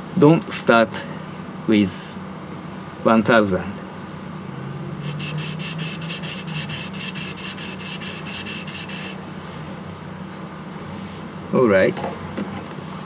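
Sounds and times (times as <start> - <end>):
blade grinding on whetstone: 5.0 - 9.3.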